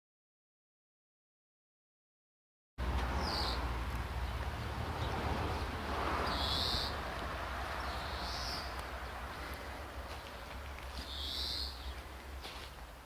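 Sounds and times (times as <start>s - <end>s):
diesel engine idling: 2.8s - 13.0s
bird calling: 3.2s - 4.4s, 5.0s - 7.1s, 7.8s - 12.4s.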